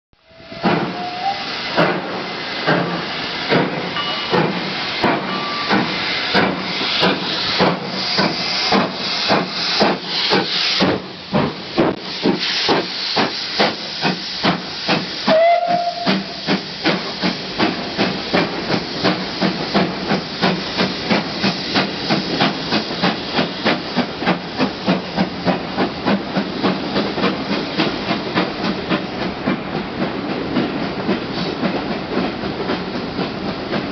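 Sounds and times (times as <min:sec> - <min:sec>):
locomotive whistle: 0:00.2 - 0:01.6, 0:05.2 - 0:06.0, 0:15.2 - 0:16.5
steam hissing: 0:00.2 - 0:33.9
steam locomotive chuffing: 0:00.2 - 0:33.9.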